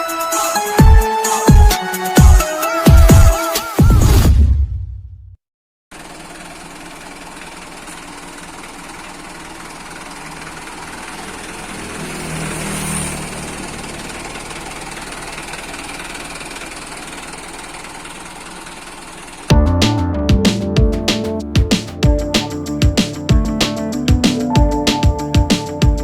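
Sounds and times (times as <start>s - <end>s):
truck diesel engine running: 6.0s - 26.0s.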